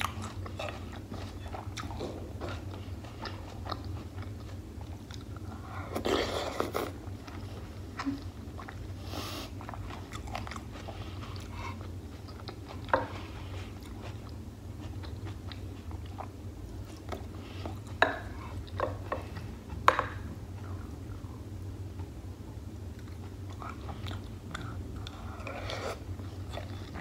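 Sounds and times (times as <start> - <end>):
close chewing mouth sounds: 0.0 - 22.2, 22.8 - 27.0.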